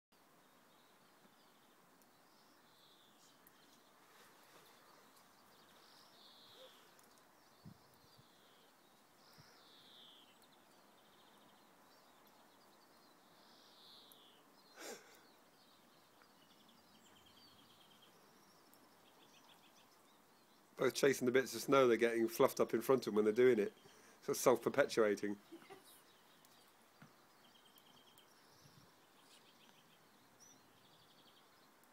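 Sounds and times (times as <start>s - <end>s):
bird chirps and trills: 4.6s - 20.7s.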